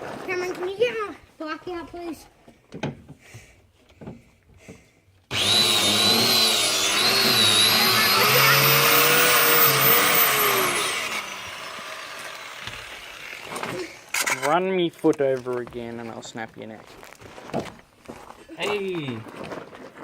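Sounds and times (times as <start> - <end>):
small electric motor whining: 5.3 - 14.4.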